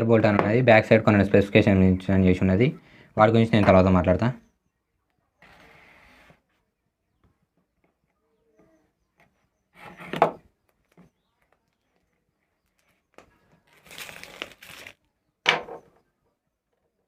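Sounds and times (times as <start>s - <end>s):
packaging crinkling and rustling: 11.6s - 15.1s.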